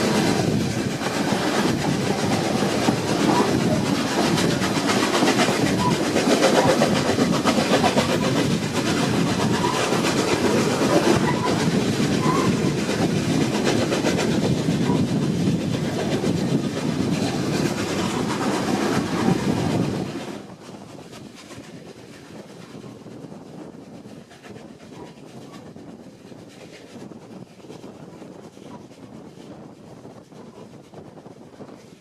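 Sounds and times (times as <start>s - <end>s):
carriage wheels clacking over rail joints: 0.0s - 20.1s
train passing: 0.0s - 23.5s.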